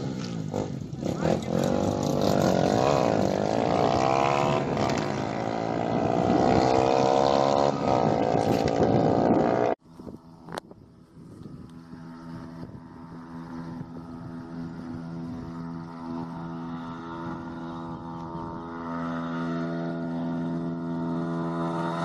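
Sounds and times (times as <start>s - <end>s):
motorcycle engines revving: 0.0s - 22.0s
steady hum: 0.0s - 22.0s.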